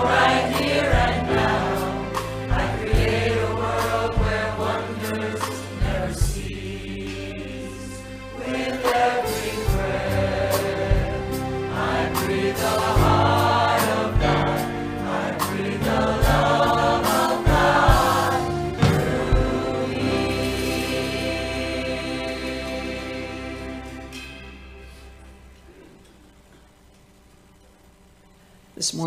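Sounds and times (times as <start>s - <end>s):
choir singing gospel song: 0.0s - 25.9s
instrumental accompaniment: 0.0s - 27.0s
low regular beat: 11.0s - 20.3s.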